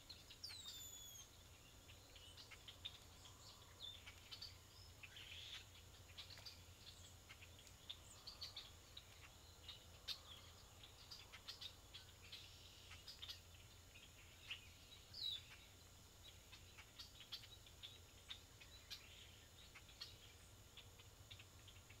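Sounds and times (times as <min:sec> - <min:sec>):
steady low hiss: 0:00.0 - 0:22.0
bird chirps and clicks: 0:02.1 - 0:14.6.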